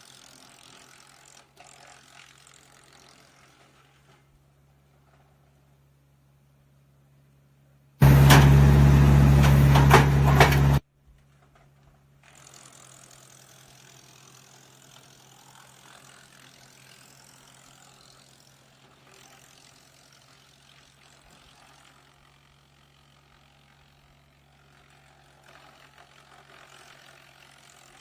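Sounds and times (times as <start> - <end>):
wood chipper running: 8.0 - 28.0.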